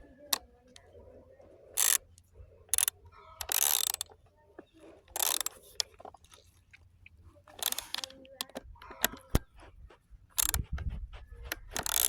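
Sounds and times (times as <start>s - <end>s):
ratchet wrench clicking: 1.8s - 4.2s, 5.2s - 5.8s, 7.6s - 9.4s, 10.4s - 10.6s, 11.6s - 12.0s.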